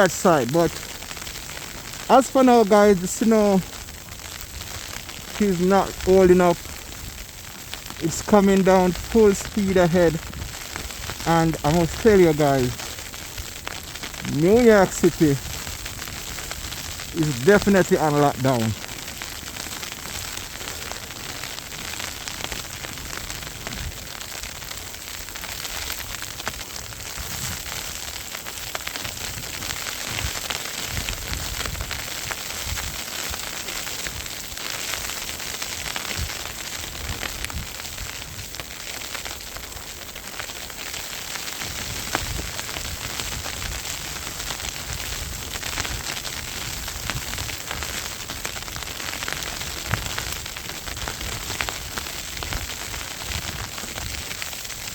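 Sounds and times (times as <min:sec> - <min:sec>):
low wind rumbles: 0:00.0 - 0:24.8
hiss of heavy falling snow: 0:00.0 - 0:54.9.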